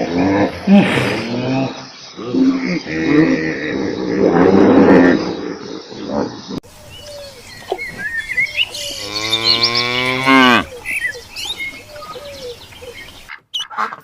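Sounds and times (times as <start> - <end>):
birds chirping: 0.0 - 14.0
cow mooing: 8.9 - 10.8.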